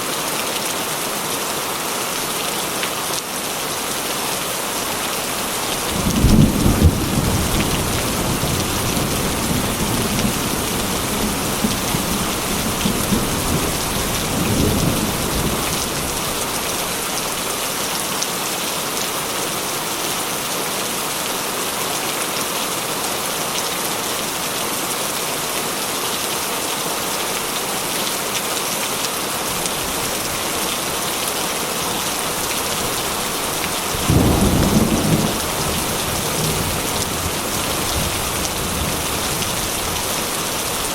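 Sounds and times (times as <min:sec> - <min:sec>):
rain on a metal roof: 0:00.0 - 0:40.9
thunder rolling: 0:33.9 - 0:39.4.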